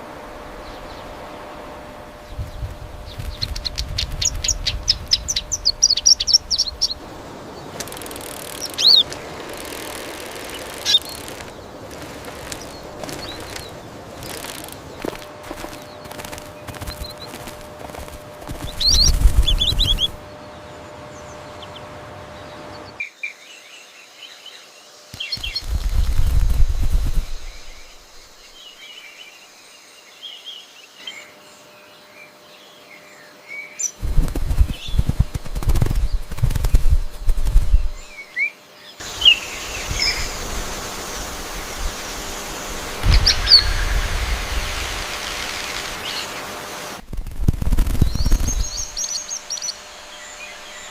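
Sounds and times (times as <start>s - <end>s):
wing flapping: 1.8s - 20.3s, 25.1s - 28.6s, 34.0s - 38.2s, 39.0s - 50.9s
small bird chirping: 2.2s - 20.6s, 24.3s - 29.4s, 33.7s - 46.4s, 47.3s - 50.9s.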